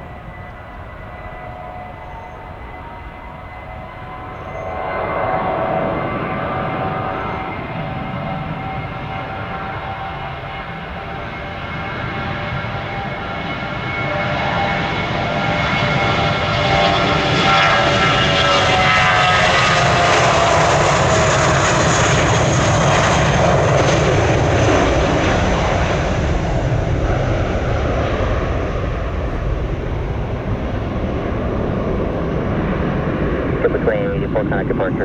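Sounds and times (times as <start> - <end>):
jet engines whining: 0.0 - 35.0
broad rumble: 29.3 - 35.0.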